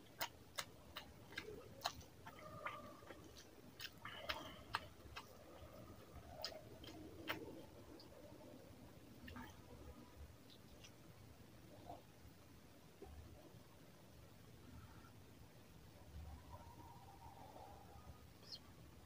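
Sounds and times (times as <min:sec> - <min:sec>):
fingers squishing rice: 0:00.0 - 0:08.4
wet chewing and mouth clicks: 0:00.0 - 0:11.0.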